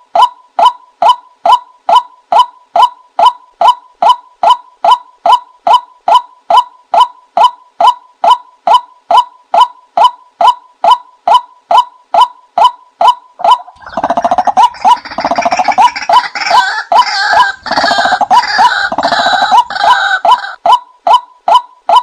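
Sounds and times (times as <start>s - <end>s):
rapid rattling bird chatter: 13.8s - 16.5s, 17.3s - 20.2s.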